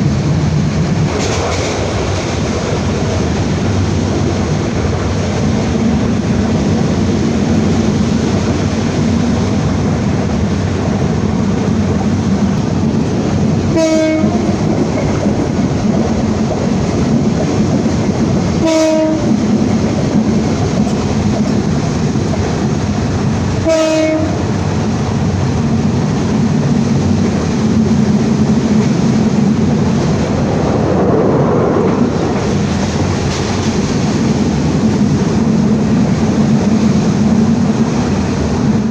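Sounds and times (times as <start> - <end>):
passenger train running: 0.0 - 38.9
train horn blasts: 13.7 - 14.6, 18.6 - 19.4, 23.6 - 24.5.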